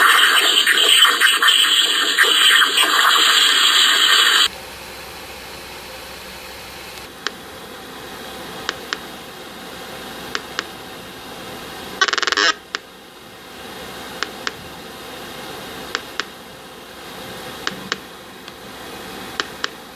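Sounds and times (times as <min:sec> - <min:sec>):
loud crackling hiss: 0:00.0 - 0:04.5
low hum: 0:00.0 - 0:04.5.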